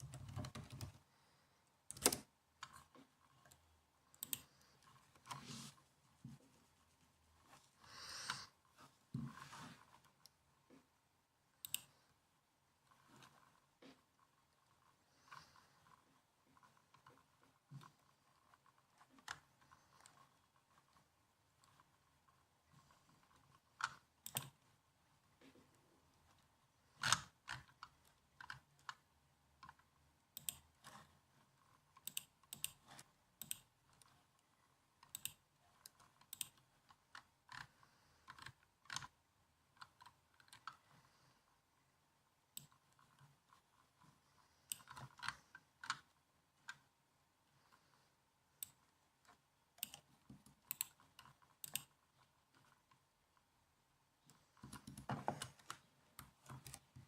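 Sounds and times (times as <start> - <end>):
typing on a laptop keyboard: 0.0 - 1.0, 1.9 - 2.9, 23.8 - 24.6, 32.0 - 33.7, 35.0 - 39.2, 49.8 - 52.0.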